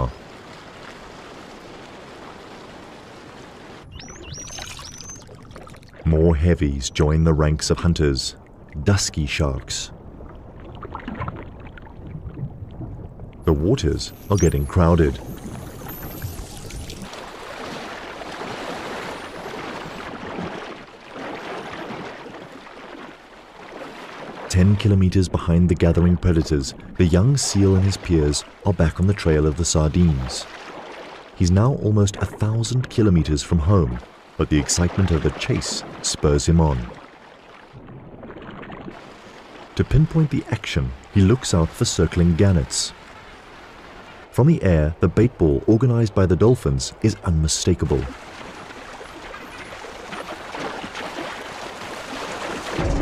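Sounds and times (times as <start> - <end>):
underwater rushing noise: 0.0 - 6.5, 9.9 - 24.8, 33.3 - 39.8, 47.0 - 53.0
dolphin whistles: 3.9 - 5.3.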